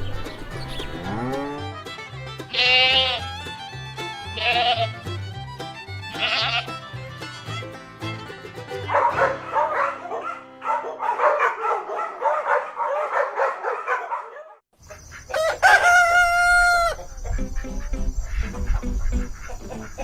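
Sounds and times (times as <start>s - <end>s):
chickens clucking: 14.8s - 20.0s
rooster crowing: 15.3s - 17.3s.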